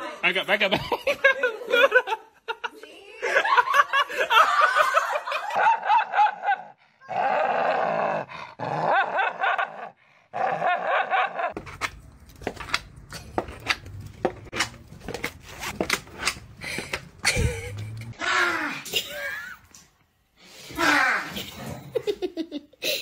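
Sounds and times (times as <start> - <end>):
dog barking and growling: 5.7 - 11.6
low hum: 17.2 - 18.2.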